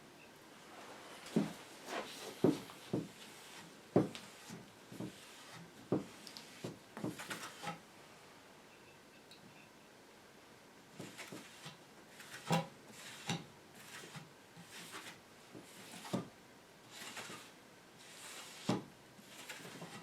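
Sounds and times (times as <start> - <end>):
rubbing on wooden workbench: 1.3 - 7.8, 11.0 - 16.3, 16.9 - 20.0.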